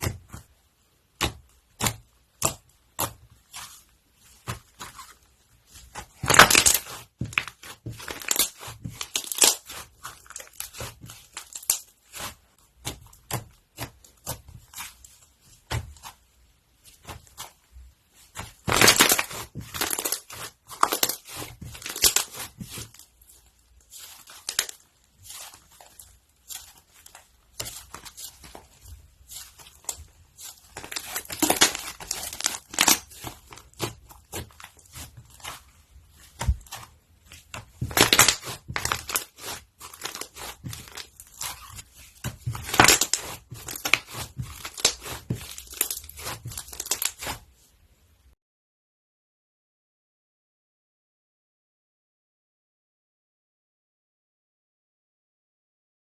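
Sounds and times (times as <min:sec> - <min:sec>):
crunchy slime crackling and popping: 0:01.2 - 0:15.0, 0:18.3 - 0:47.4.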